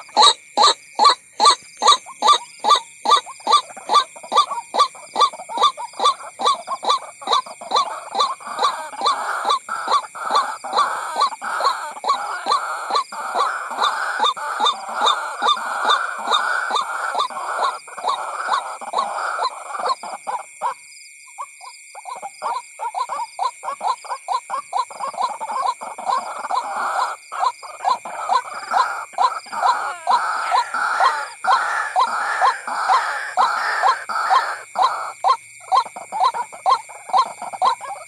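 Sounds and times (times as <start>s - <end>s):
waterhen calling: 0.0s - 20.8s, 22.0s - 38.0s.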